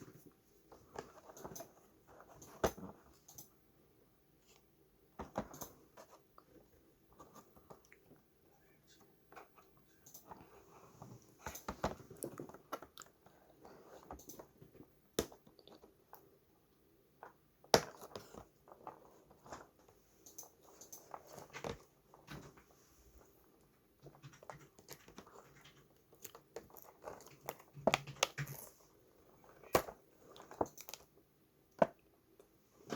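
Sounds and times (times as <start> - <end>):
small objects clicking and tapping: 24.0 - 28.8.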